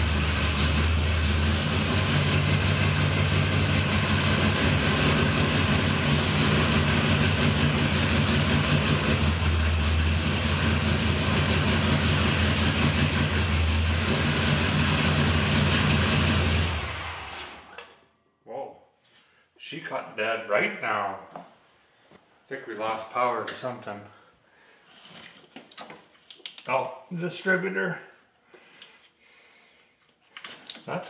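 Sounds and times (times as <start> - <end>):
car engine running steadily: 0.0 - 17.4.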